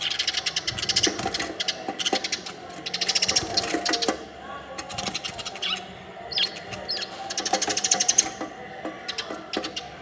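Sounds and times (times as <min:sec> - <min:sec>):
beaks tapping on mirror: 0:06.4 - 0:09.9.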